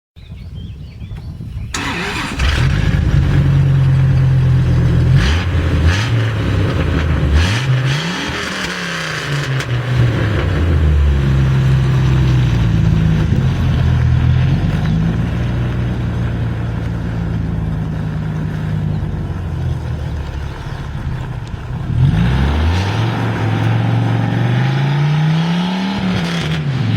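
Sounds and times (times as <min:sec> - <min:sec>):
engine starting and revving: 0:01.7 - 0:15.0, 0:19.6 - 0:26.9.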